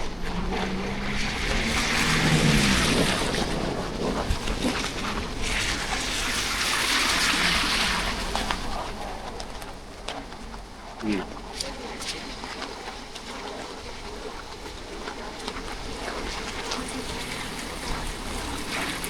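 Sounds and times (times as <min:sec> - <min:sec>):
vehicle engine hum: 0:00.0 - 0:09.5, 0:15.3 - 0:19.0
tyres hissing on wet asphalt: 0:00.1 - 0:09.0, 0:15.8 - 0:19.0.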